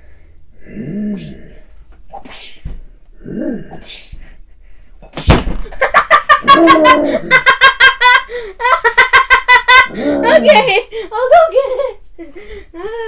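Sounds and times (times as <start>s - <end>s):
sharp smack: 5.1s - 5.7s
child giggling: 5.7s - 12.0s.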